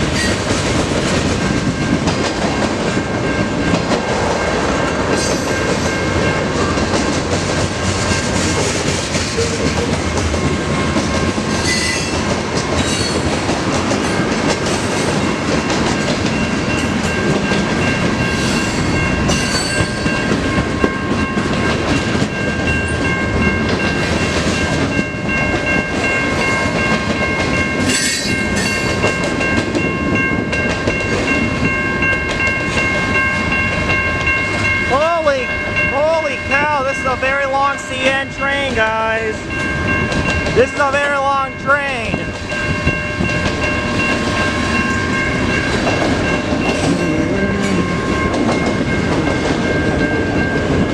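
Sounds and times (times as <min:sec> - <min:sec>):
train wheels rumbling on rail: 0:00.0 - 0:50.9
high ringing tones: 0:15.2 - 0:50.9.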